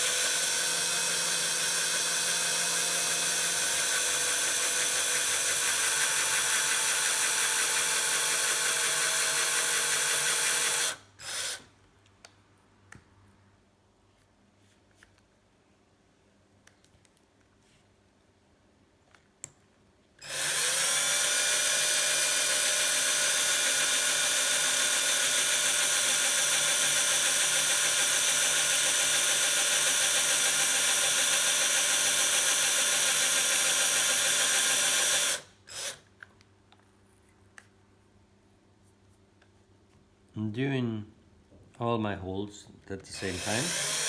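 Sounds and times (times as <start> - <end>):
electric drill drilling: 0.0 - 11.7, 20.2 - 36.0, 43.2 - 44.0.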